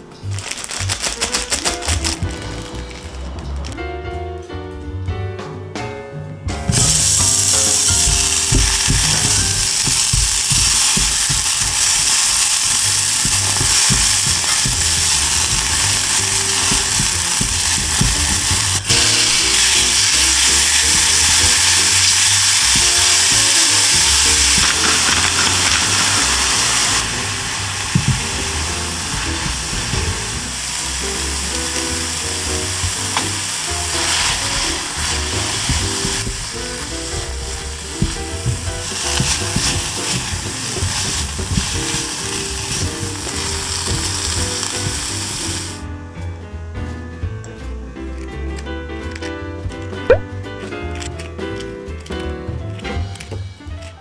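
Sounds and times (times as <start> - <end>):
background music: 0.0 - 54.0
vegetables sizzling in a pan: 0.2 - 3.1, 6.7 - 45.8
chopsticks stirring: 6.8 - 45.8.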